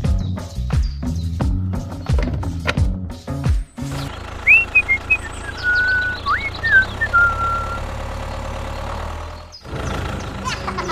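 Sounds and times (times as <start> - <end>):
low motor hum: 3.8 - 10.9
high whistled chirps: 4.4 - 7.9.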